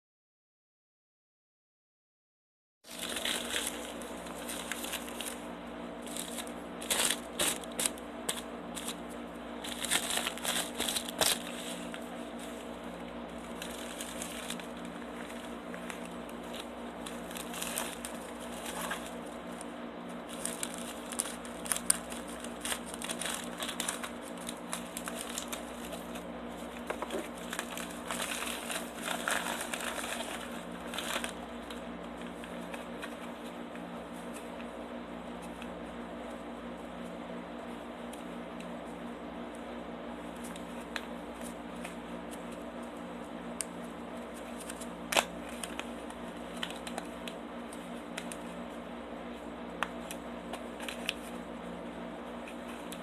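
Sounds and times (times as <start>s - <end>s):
packaging crinkling: 2.9s - 33.5s, 44.3s - 47.4s, 49.8s - 51.4s.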